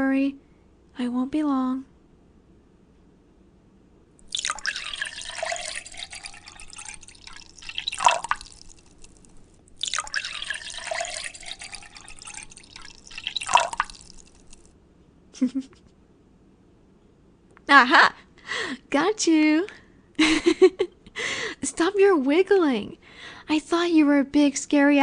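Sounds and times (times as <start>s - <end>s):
tap water splashing into sink: 4.3s - 9.2s, 9.8s - 14.7s.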